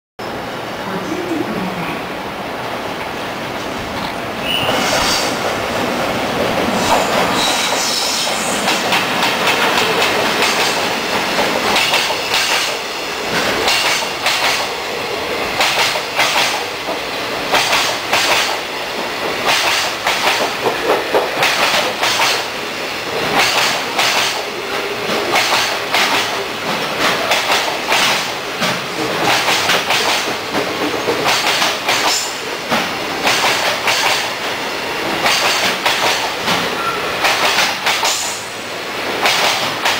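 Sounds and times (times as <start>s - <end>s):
train wheels clacking over rail joints: 4.0s - 39.9s
train wheel squeal: 4.4s - 5.4s, 6.8s - 8.8s, 11.8s - 12.7s, 36.6s - 37.2s.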